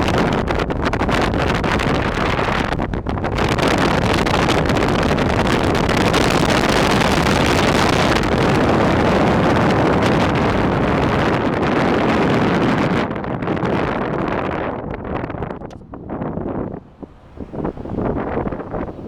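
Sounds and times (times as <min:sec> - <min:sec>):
wind rushing on microphone: 0:00.0 - 0:19.0
passing road traffic: 0:15.2 - 0:19.0.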